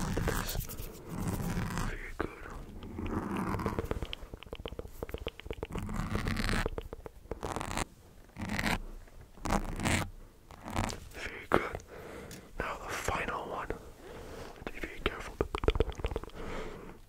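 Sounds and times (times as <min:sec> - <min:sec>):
wet mouth clicks: 0:01.3 - 0:07.6, 0:14.8 - 0:16.5.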